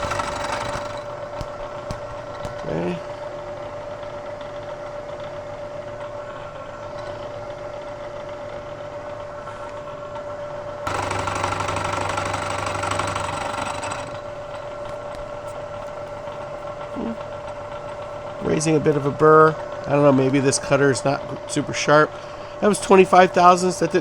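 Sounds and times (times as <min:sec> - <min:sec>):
milling machine spindle whine: 0:00.0 - 0:01.2, 0:10.9 - 0:14.8
end mill cutting steel: 0:00.0 - 0:02.6, 0:10.9 - 0:14.8.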